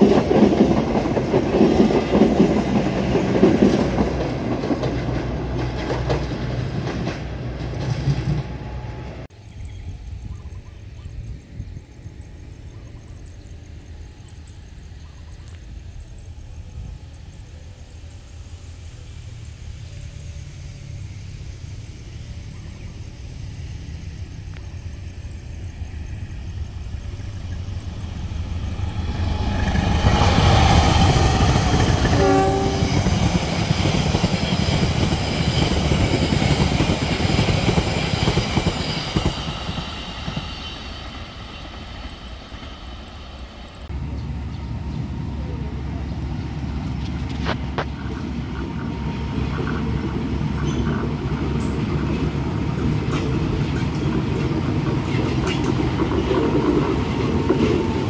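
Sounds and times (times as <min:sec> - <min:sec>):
train rumbling past: 0:00.0 - 0:58.0
train horn blast: 0:32.0 - 0:33.3.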